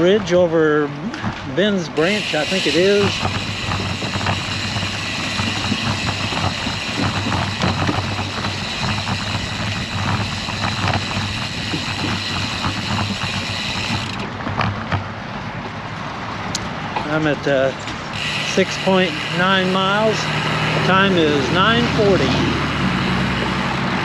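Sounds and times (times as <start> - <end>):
bicycle road rumble: 0.0 - 24.0
passing motor traffic: 0.0 - 24.0
wind rush: 2.0 - 14.9.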